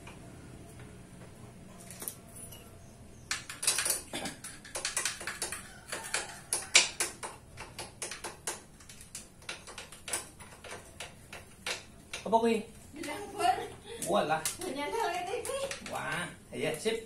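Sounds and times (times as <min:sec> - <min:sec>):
sharp irregular clicks and taps: 0:03.3 - 0:12.4, 0:14.0 - 0:16.8.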